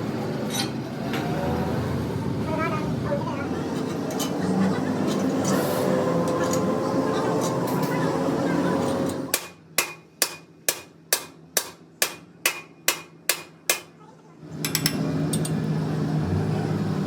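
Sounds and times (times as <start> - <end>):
hammer striking metal: 9.3 - 14.0.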